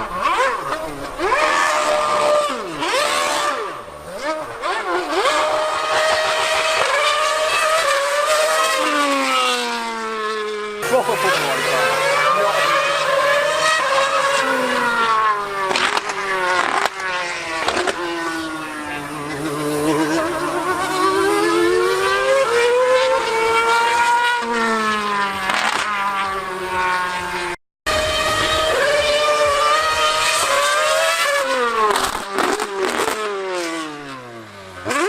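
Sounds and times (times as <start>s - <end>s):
racing car engine at high revs: 0.0s - 35.0s.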